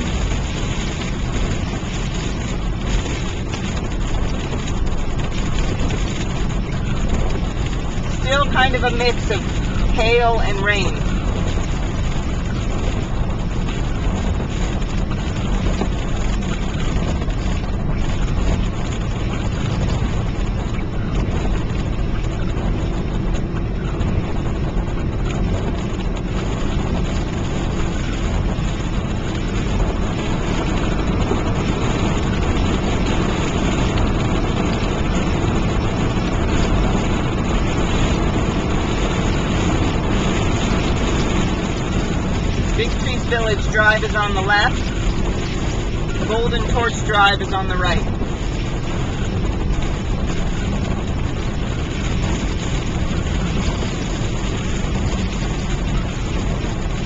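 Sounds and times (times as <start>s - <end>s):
car driving noise from inside: 0.0s - 57.0s
hail and rain hitting car: 0.0s - 57.0s.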